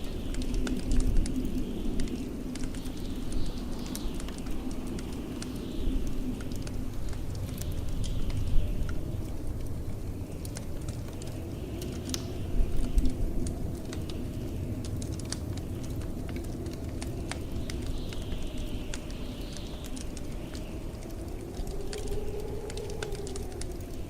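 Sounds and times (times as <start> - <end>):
blizzard wind rumble: 0.0 - 24.0
faint wind hiss: 0.0 - 24.0
wood fire crackling: 0.0 - 24.0.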